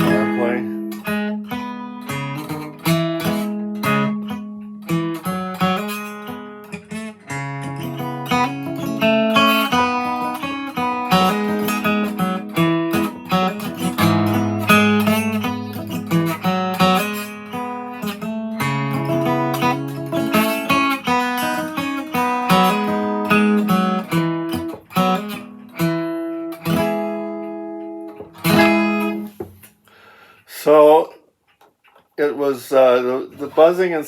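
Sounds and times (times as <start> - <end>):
acoustic guitar notes and strummed chords: 0.0 - 34.0.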